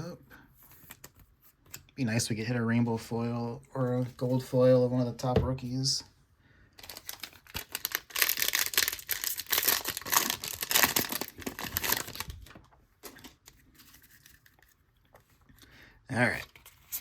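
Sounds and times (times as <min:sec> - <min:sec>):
card pack wrapper tearing: 0:06.8 - 0:14.8.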